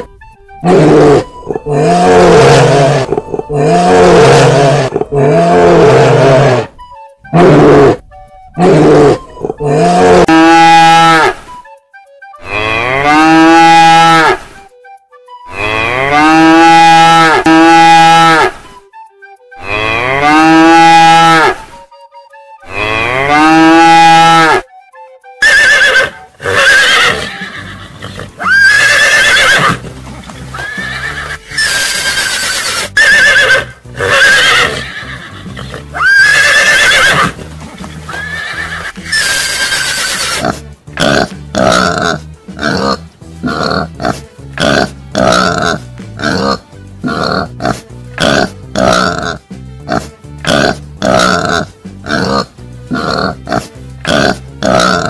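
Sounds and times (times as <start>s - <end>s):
cow mooing: 0.6s - 6.7s, 8.6s - 11.4s, 22.7s - 24.6s
horses neighing: 0.6s - 6.7s, 8.6s - 11.4s, 25.4s - 55.0s.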